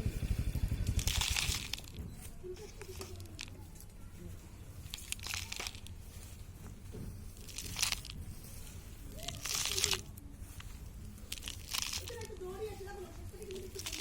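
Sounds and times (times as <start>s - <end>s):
dry soil pouring into pot: 0.2s - 2.0s, 4.8s - 14.0s.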